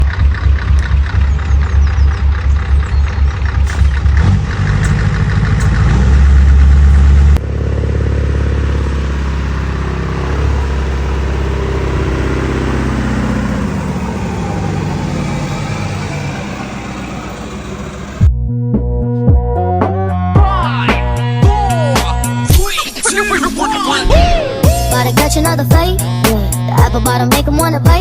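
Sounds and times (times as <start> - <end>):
vehicle engine winding down: 0.0 - 18.3, 23.7 - 28.0
music: 18.2 - 28.0.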